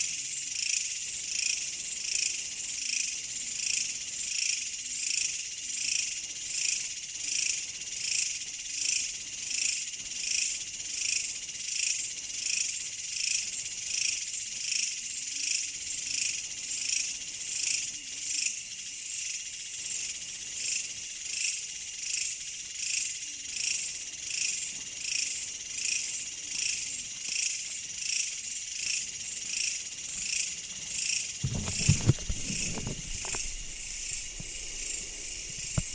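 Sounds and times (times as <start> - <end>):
insects chirping: 0.0 - 35.9
low thumps: 31.4 - 35.9.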